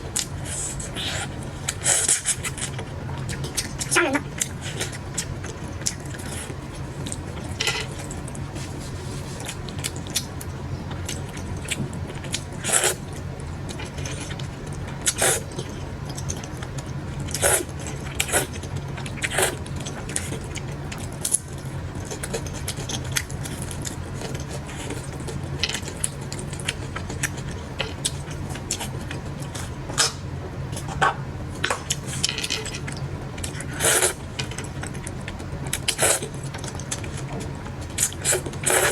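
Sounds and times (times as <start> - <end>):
steady low hum: 0.0 - 38.9
chewing: 0.2 - 31.0.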